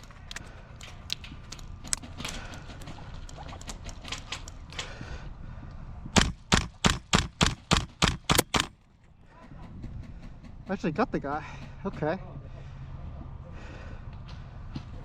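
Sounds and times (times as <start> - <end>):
airsoft gun shots: 6.2 - 8.8.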